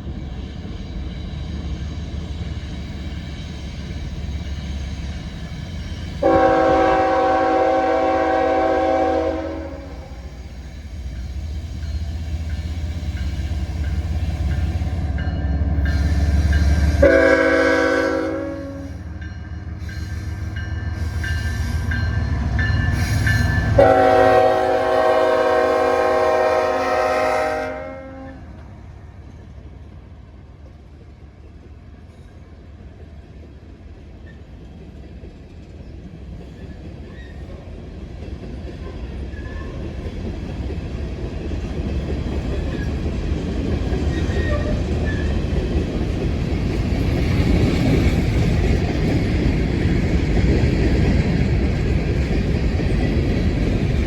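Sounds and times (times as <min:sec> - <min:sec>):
train air horn blasts: 0:06.2 - 0:10.4, 0:15.8 - 0:19.1, 0:23.0 - 0:28.6.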